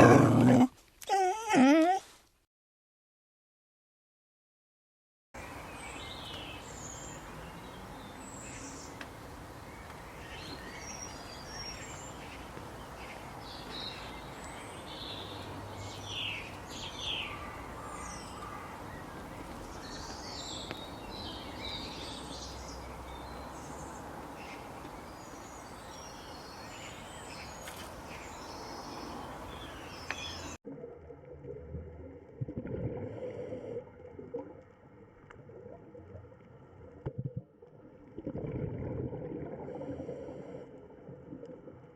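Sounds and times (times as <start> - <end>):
birds chirping: 5.4 - 30.6.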